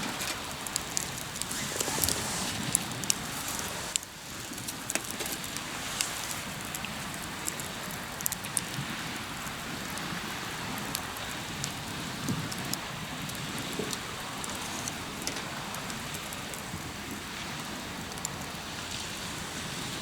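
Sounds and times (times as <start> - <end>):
steady background hiss: 0.0 - 7.4
campfire crackling and popping: 0.0 - 20.0.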